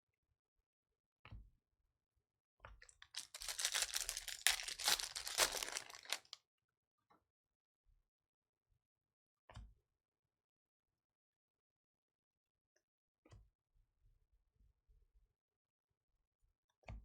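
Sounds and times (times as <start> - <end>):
foil wrapper tearing and crinkling: 3.0 - 6.4.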